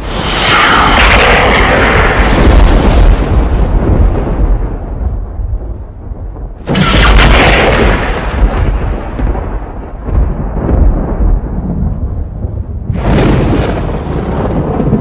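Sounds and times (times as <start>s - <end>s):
thunderclap rumbling: 0.0s - 15.0s.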